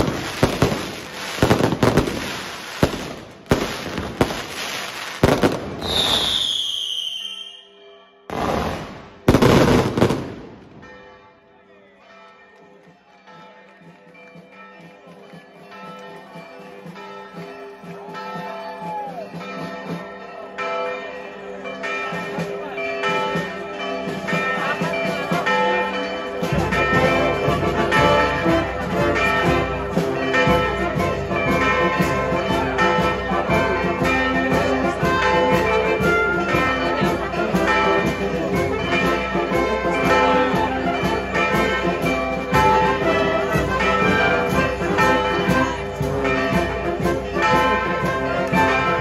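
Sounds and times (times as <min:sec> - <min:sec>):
church bells pealing: 0:00.0 - 0:05.8, 0:07.7 - 0:49.0
fireworks bursting: 0:00.0 - 0:07.6, 0:08.3 - 0:10.8
whistling firework: 0:00.0 - 0:10.4
music: 0:11.6 - 0:49.0.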